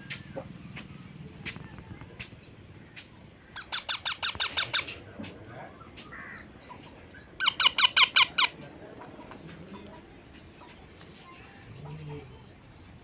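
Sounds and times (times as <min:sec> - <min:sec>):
parrot screeching: 0:03.6 - 0:04.9, 0:07.4 - 0:08.5.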